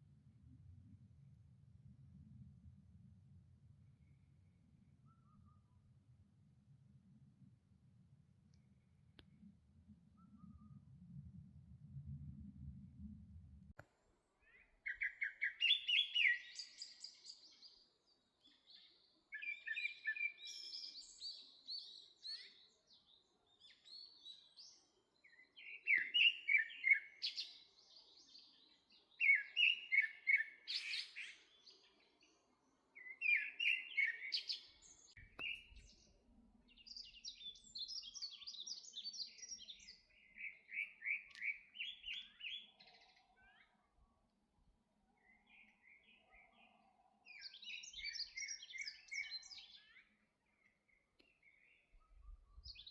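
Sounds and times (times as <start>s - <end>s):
songbird twittering: 14.4s - 17.5s, 25.2s - 27.7s, 29.2s - 31.6s, 33.0s - 36.0s, 36.7s - 43.8s, 47.3s - 50.2s.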